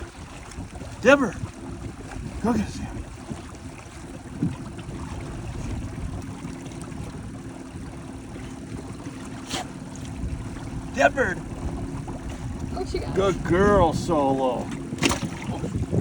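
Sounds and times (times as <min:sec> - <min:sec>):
boat motor humming: 0:00.0 - 0:16.0
wind noise: 0:00.0 - 0:16.0
sharp splash or knock: 0:09.3 - 0:15.8.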